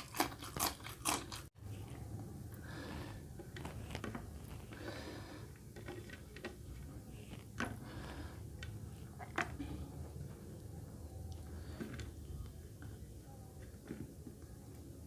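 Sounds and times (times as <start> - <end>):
close chewing and wet mouth sounds: 0.0 - 2.0.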